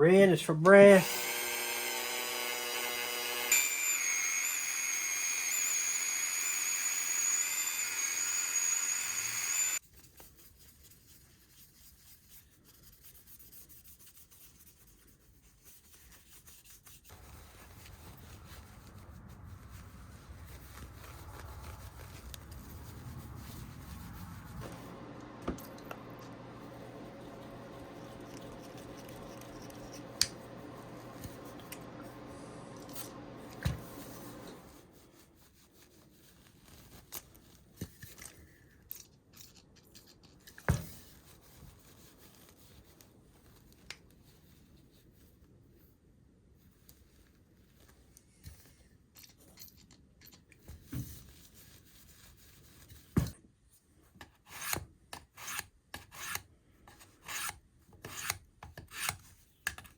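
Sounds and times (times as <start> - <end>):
polishing motor humming: 1.0 - 9.8, 24.4 - 34.8.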